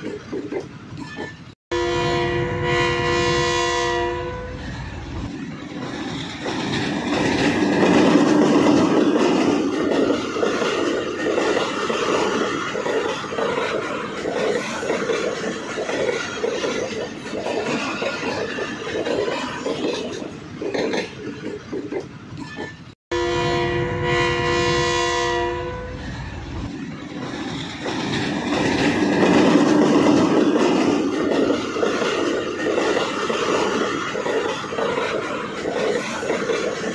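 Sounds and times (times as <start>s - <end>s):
train rumbling and clattering on rails: 0.0s - 36.9s
train horn blast: 1.7s - 4.6s, 23.1s - 26.1s.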